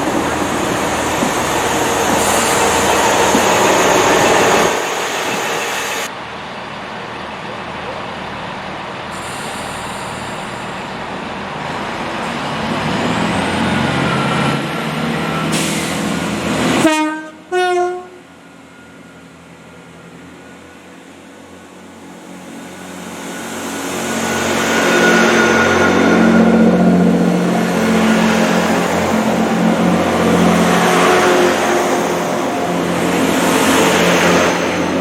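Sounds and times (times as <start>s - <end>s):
train running: 0.0s - 35.0s
two-tone train horn blasts: 16.8s - 18.3s.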